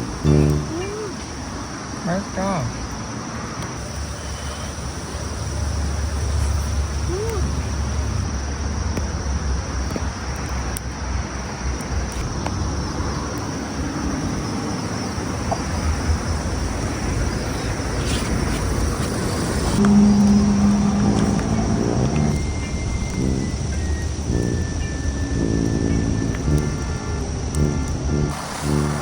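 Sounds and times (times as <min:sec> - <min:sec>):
crickets chirping: 0:00.0 - 0:29.0
low rumble: 0:19.8 - 0:29.0.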